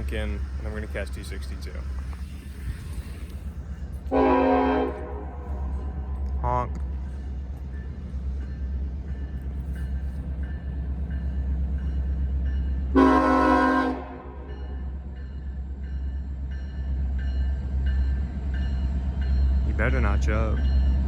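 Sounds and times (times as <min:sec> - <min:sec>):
diesel locomotives rumbling: 0:00.0 - 0:21.0
locomotive air horn blast: 0:04.1 - 0:06.2, 0:12.9 - 0:14.5.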